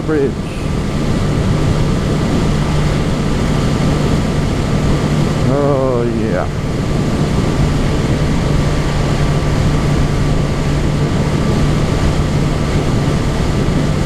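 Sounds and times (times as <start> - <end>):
motorcycle engine cruising: 0.0 - 14.0
wind noise on microphone: 0.0 - 14.0.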